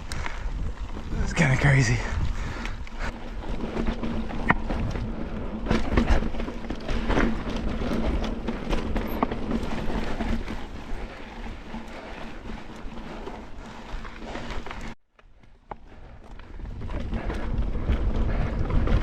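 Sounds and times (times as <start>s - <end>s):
wind on microphone: 0.0s - 6.4s, 16.5s - 19.0s
bike tyre rumble: 0.0s - 19.0s
bike knocks and rattles: 2.5s - 15.0s.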